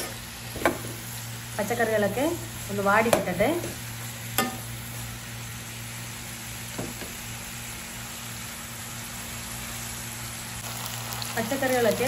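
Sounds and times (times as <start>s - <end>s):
vegetables frying sizzle: 0.0s - 12.0s.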